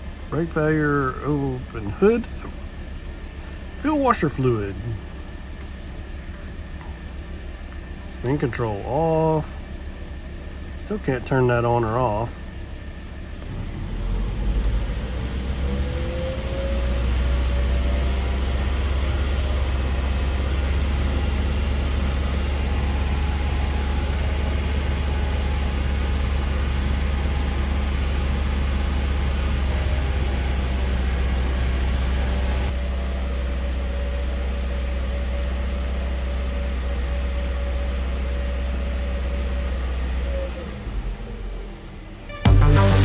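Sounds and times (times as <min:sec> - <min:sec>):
car engine running: 0:00.0 - 0:43.0.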